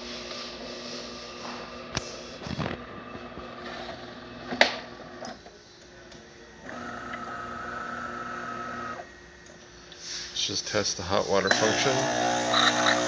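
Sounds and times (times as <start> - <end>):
espresso machine humming: 6.6 - 9.1, 11.4 - 13.0
motor whine: 6.6 - 9.2, 11.5 - 13.0.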